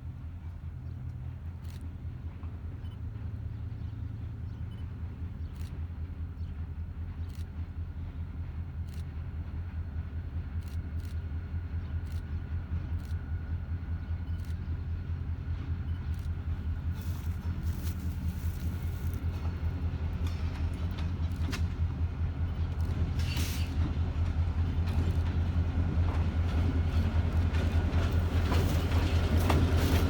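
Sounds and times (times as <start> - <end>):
low engine rumble: 0.0 - 30.0
faint clicks: 8.8 - 9.2, 15.9 - 21.8.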